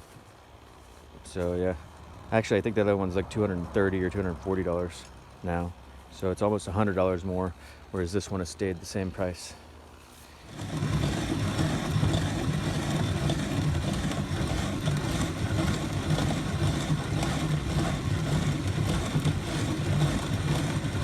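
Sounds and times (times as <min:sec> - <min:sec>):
mechanical engine-like drone: 0:10.4 - 0:21.0.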